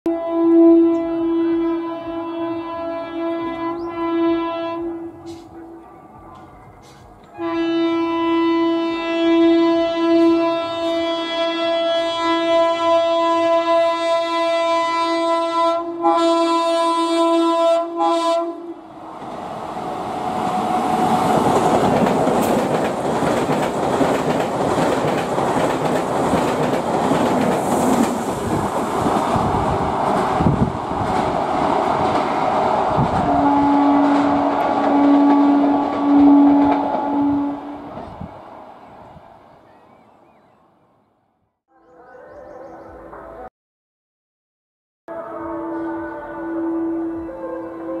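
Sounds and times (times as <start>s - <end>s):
train horn blast: 0.1s - 5.8s, 7.3s - 19.1s, 33.0s - 38.2s, 45.1s - 48.0s
train rushing past: 18.2s - 39.6s.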